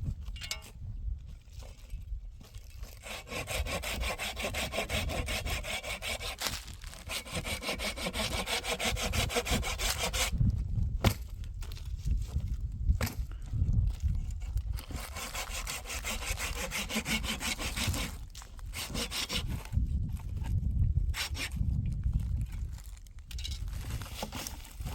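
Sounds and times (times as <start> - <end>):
saw cutting wood: 2.8 - 10.4, 14.8 - 19.8, 21.1 - 21.6.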